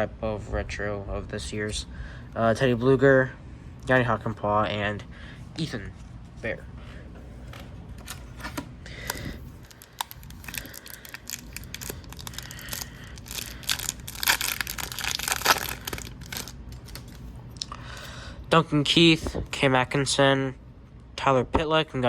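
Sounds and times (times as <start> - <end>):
foil wrapper tearing and crinkling: 9.0 - 17.3.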